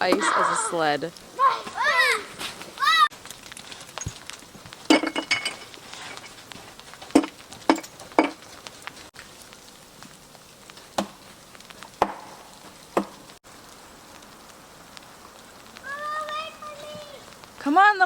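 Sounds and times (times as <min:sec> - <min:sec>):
ice crunching: 0:00.0 - 0:13.4
ice clinking: 0:04.9 - 0:05.7
faint hiss: 0:09.0 - 0:18.0.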